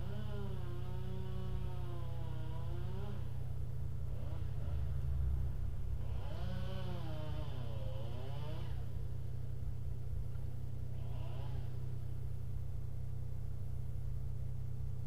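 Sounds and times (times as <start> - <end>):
passing vehicle engine: 4.0 - 9.0.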